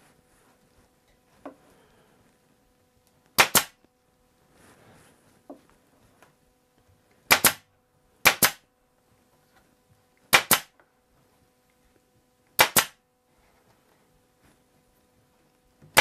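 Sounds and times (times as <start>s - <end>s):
pneumatic stapler firing: 3.4s - 3.8s, 7.3s - 7.6s, 8.2s - 8.6s, 10.3s - 10.7s, 12.6s - 13.0s.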